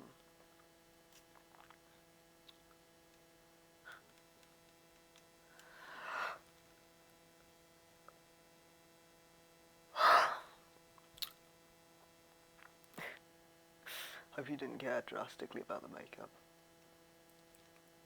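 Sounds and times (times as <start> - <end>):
low electrical hum: 0.0 - 18.0
person inhaling: 5.5 - 6.4, 13.9 - 14.3.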